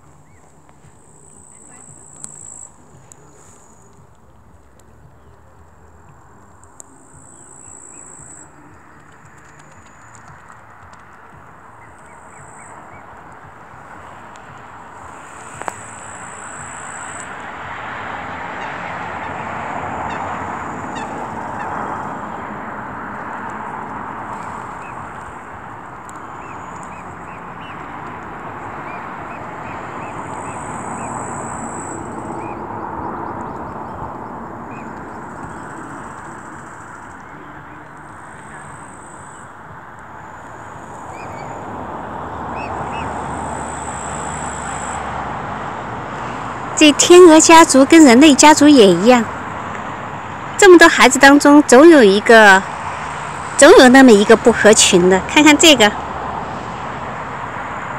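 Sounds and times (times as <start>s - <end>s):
rushing background noise: 0.0s - 57.9s
waterfowl honking chorus: 18.2s - 23.8s.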